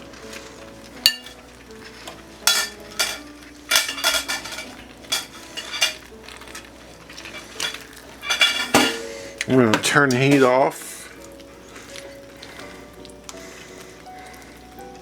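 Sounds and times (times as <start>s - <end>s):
utensil scraping and clinking pan: 1.0s - 11.0s.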